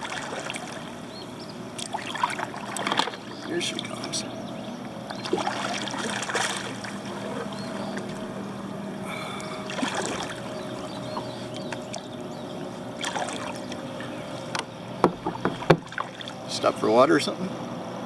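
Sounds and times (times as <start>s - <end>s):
paddle strokes splashing: 0.0s - 16.5s
distant lawnmower engine: 0.0s - 18.0s
sharp knocks: 14.6s - 16.0s.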